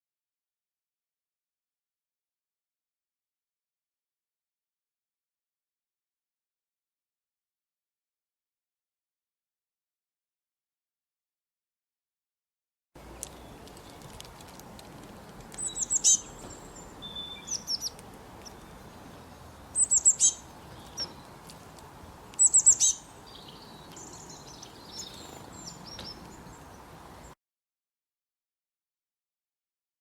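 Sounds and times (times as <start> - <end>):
faint outdoor hiss: 13.0 - 27.4
soft bird chirps: 13.0 - 27.4
songbird singing: 13.0 - 27.4.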